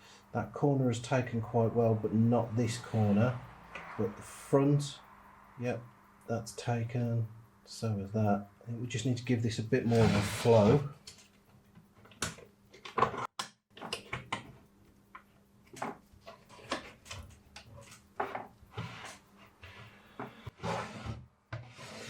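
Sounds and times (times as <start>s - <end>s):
faint steady hum: 0.0s - 13.1s
small tools clicking and tapping: 11.0s - 18.6s.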